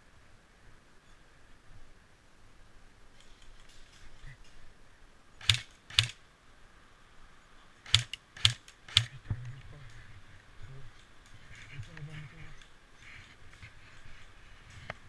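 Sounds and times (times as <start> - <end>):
airsoft gun single shots: 5.4 - 6.2, 7.9 - 9.2.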